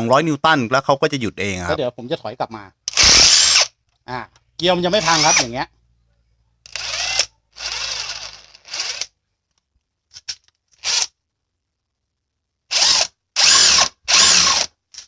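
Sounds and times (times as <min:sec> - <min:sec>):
impact wrench bursts: 0:02.9 - 0:03.7, 0:12.7 - 0:14.7.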